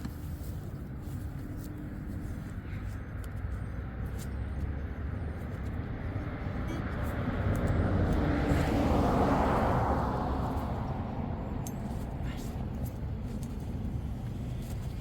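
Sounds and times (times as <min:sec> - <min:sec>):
vehicle passing by: 0:03.6 - 0:15.0.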